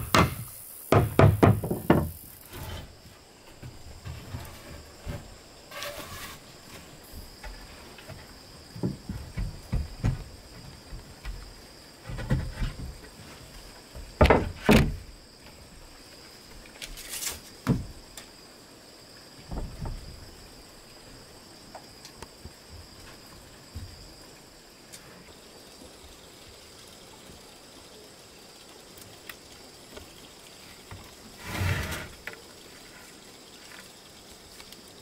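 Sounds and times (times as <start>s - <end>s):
knocks and thumps: 0.0s - 5.4s, 6.8s - 13.2s, 13.9s - 15.1s, 17.6s - 18.0s, 19.5s - 20.2s.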